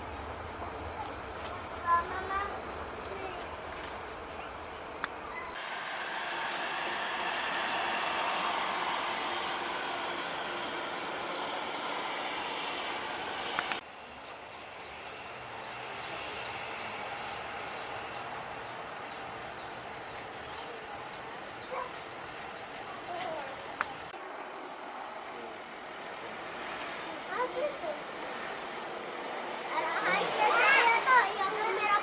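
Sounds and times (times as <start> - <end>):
high-pitched insect drone: 0.0 - 24.1
background noise haze: 0.0 - 32.0.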